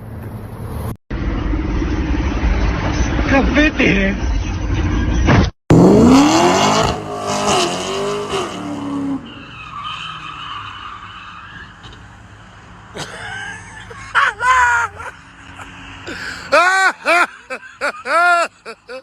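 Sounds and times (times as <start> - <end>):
car engine revving: 4.3 - 9.3
tires skidding: 4.8 - 18.4.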